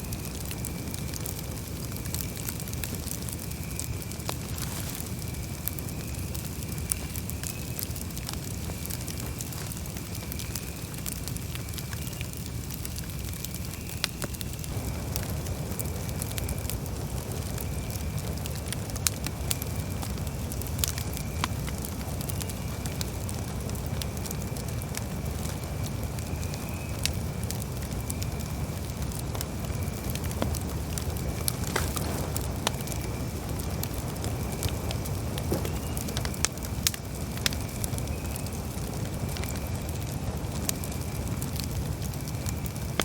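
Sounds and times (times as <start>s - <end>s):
campfire crackling: 0.0s - 43.0s.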